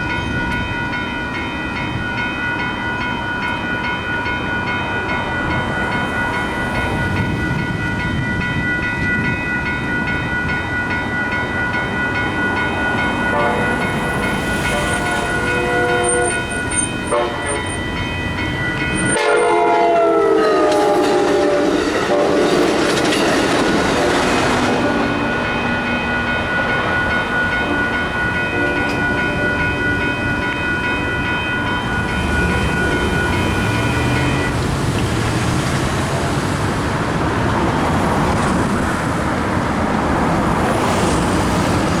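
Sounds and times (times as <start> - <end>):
crossing bell ringing: 0.0 - 42.0
road traffic: 0.0 - 42.0
train horn: 13.3 - 17.8, 19.0 - 22.8, 23.8 - 25.3, 28.5 - 29.8
train wheels clickety-clack: 20.6 - 30.8, 31.6 - 42.0.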